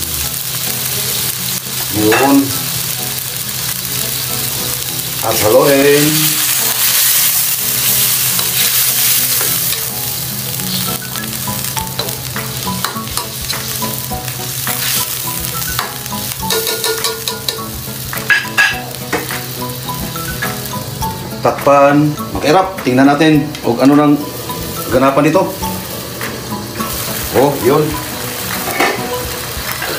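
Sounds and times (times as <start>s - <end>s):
squid simmering and sizzling: 0.0s - 22.7s, 23.4s - 29.9s
spoon stirring and scraping wok: 14.6s - 19.2s
spoon clinking onto plate: 16.5s - 17.7s.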